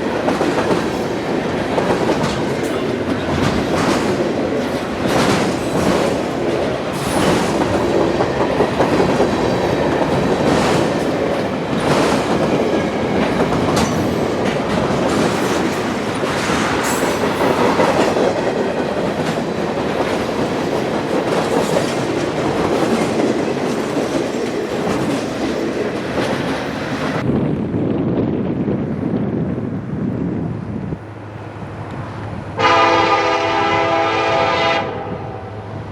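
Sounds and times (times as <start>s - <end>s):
train wheels clacking over rail joints: 0.0s - 27.2s.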